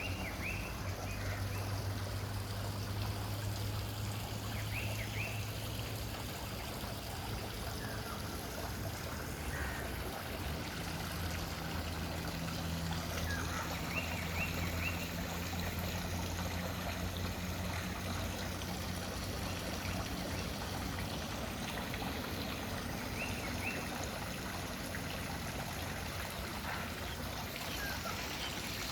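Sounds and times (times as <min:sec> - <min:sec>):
wild birds chirping: 0:00.0 - 0:02.1, 0:07.5 - 0:10.6, 0:11.4 - 0:19.0, 0:21.4 - 0:24.6, 0:25.9 - 0:28.9.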